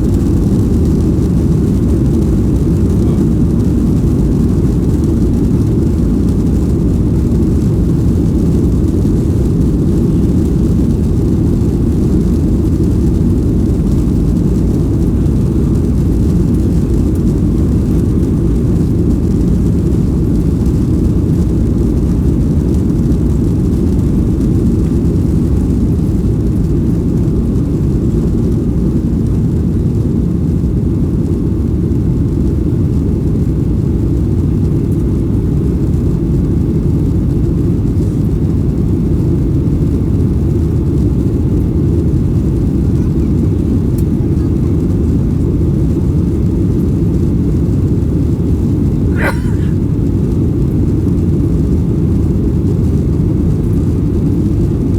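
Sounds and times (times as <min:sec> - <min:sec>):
jet engine roar in cabin: 0:00.0 - 0:54.9
airflow: 0:49.0 - 0:49.9.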